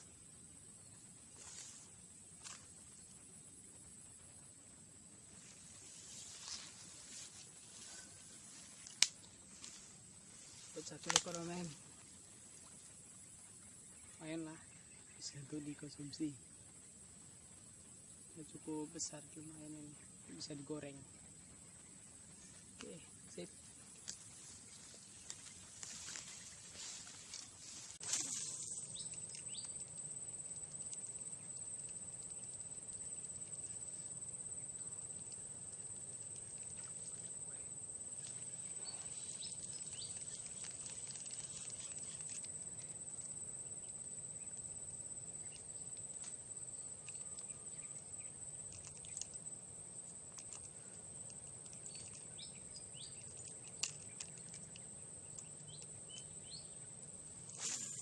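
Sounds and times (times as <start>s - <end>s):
faint clicks and ticks: 8.8s - 9.8s, 45.4s - 56.4s
high-pitched insect drone: 24.3s - 45.6s, 57.4s - 58.0s.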